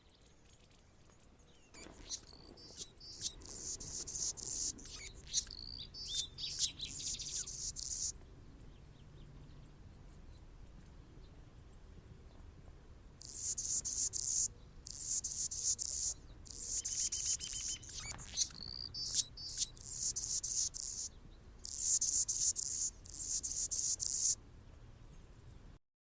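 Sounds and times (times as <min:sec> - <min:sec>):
hummingbird singing: 0:01.8 - 0:08.2, 0:13.2 - 0:24.4.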